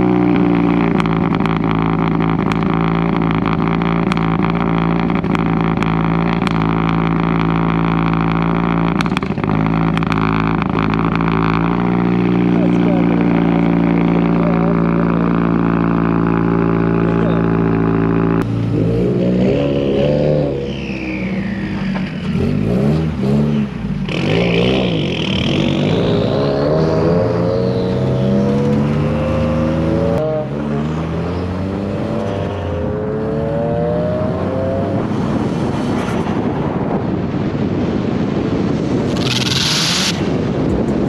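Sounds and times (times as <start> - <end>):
car engine accelerating: 0.0 - 36.5
high whine: 0.3 - 33.2.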